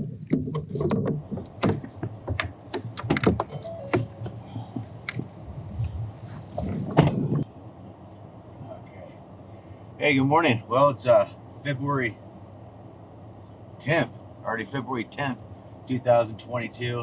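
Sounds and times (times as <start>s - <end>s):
loud thump: 6.6s - 7.4s.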